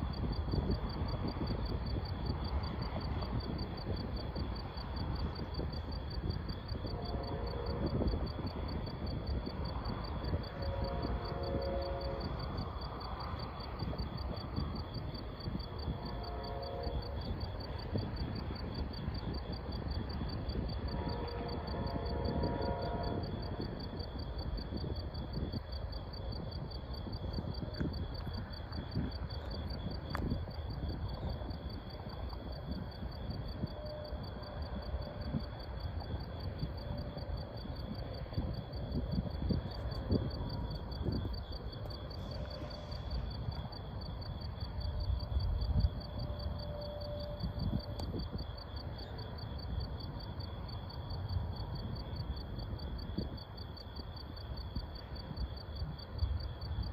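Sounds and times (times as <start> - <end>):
crickets trilling: 0.0 - 56.9.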